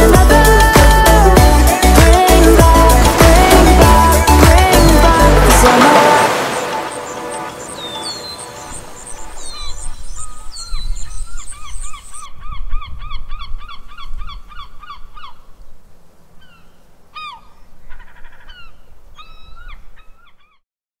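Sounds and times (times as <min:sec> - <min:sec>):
bird calling: 0:03.1 - 0:15.5, 0:16.4 - 0:20.6.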